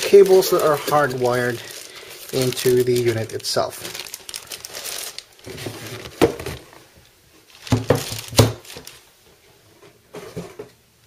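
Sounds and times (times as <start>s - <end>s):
plastic bag crinkling: 0.0s - 6.8s, 7.5s - 9.1s.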